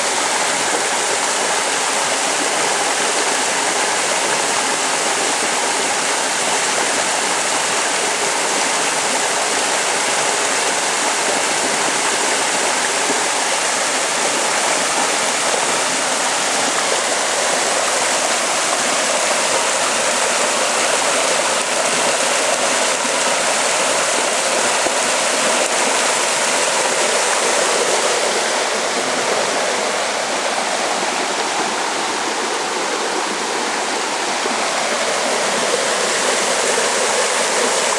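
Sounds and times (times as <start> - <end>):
heavy rain: 0.0 - 37.9
rushing water: 0.0 - 37.9.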